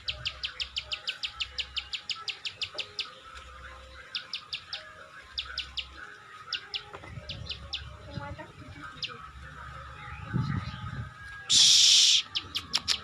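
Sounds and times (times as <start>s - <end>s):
faint chirping birds or insects: 0.0s - 12.7s
bird clicking chips: 11.5s - 13.0s.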